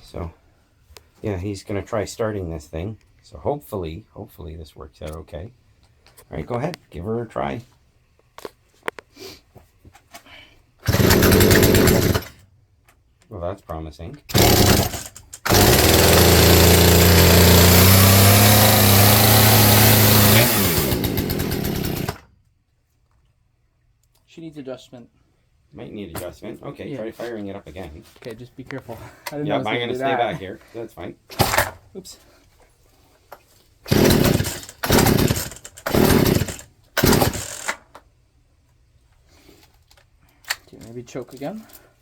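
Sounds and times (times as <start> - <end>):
chainsaw engine running: 10.8 - 12.3, 14.3 - 22.2, 33.9 - 37.8.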